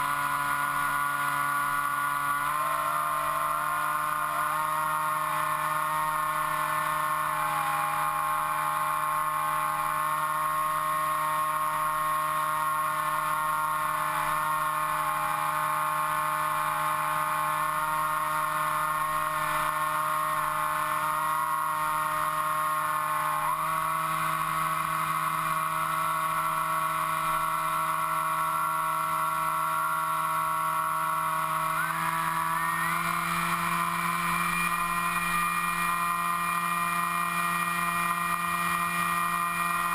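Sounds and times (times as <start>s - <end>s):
model aircraft motor whining: 0.0s - 39.9s.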